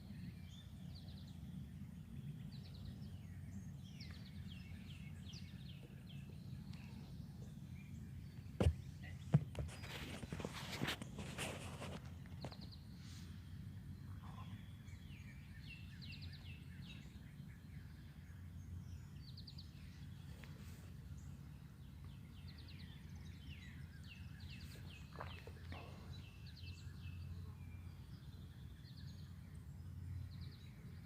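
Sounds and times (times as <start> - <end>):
steady low hum: 0.0 - 31.0
wild birds singing: 0.0 - 31.0.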